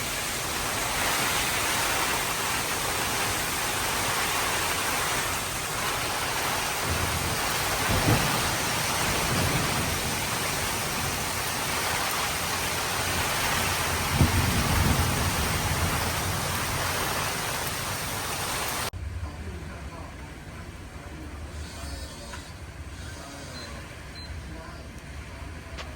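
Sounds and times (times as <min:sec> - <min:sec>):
heavy rain pouring: 0:00.0 - 0:19.0
low rumbles of thunder: 0:05.8 - 0:18.2.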